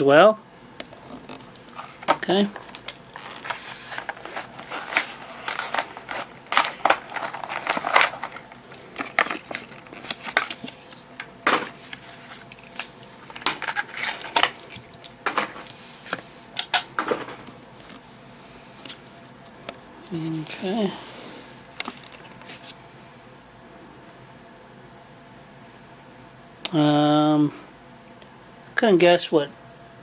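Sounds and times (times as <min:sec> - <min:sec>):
plastic packaging crinkling and tearing: 0:01.6 - 0:15.8.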